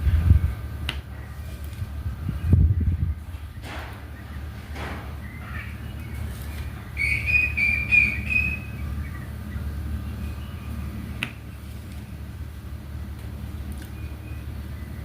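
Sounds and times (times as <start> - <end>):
steady low hum: 0.0 - 15.0
bird chirping: 2.3 - 12.4, 13.8 - 15.0.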